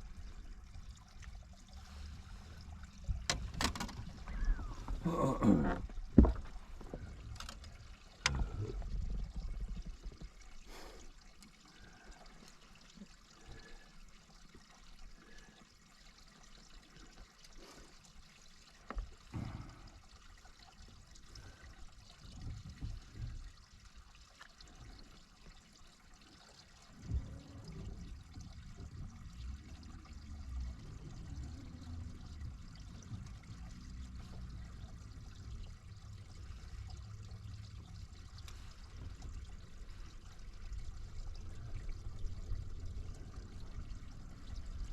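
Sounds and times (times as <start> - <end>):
water trickling and lapping: 0.0 - 44.9
knocks and bumps on boat: 5.7 - 7.1.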